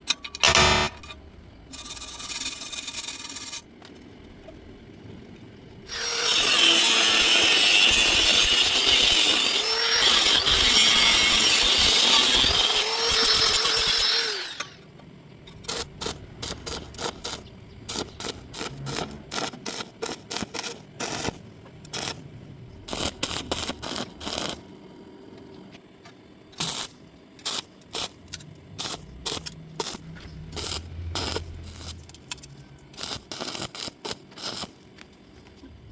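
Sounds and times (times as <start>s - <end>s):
power tool grinding metal: 5.9s - 14.8s.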